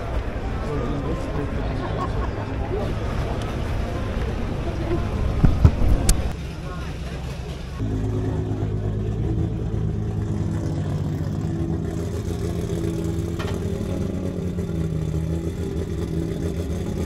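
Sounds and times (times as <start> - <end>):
car engine idling: 6.0 - 17.0.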